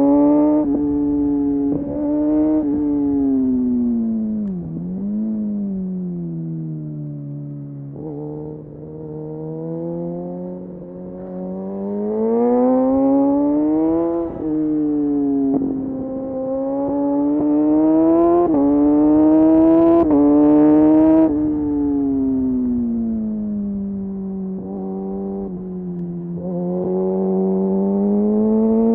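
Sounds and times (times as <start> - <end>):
motorcycle engine accelerating: 0.0 - 28.9.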